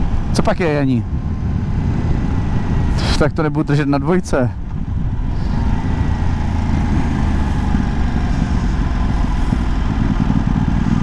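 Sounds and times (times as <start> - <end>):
wind noise: 0.0 - 11.0
motorcycle engine running: 4.6 - 11.0.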